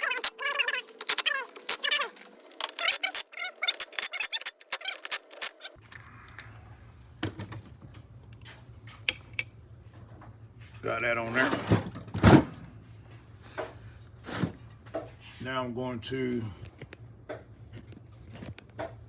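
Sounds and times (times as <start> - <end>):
small metal parts clinking: 0.0 - 5.8.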